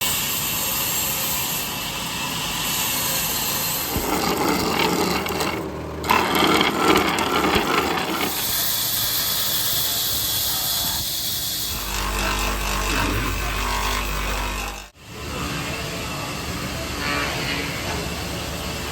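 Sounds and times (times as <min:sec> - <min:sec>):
saws cutting wood: 0:02.6 - 0:15.0.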